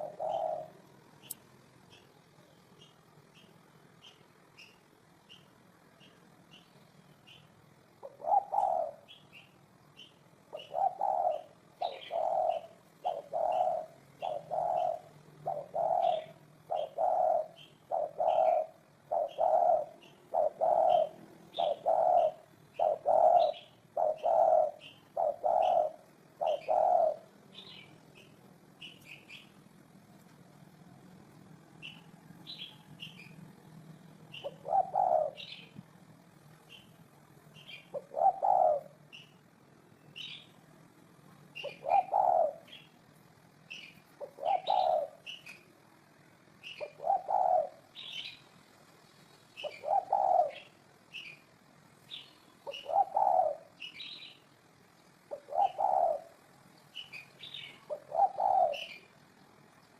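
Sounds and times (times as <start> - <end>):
dove cooing: 0.0 - 1.0, 7.3 - 29.5, 34.2 - 35.9, 37.6 - 39.4, 41.5 - 42.9, 43.7 - 45.7, 46.5 - 48.4, 49.6 - 51.4, 52.1 - 54.4, 55.2 - 59.7
small bird chirping: 0.0 - 29.9, 30.7 - 59.9.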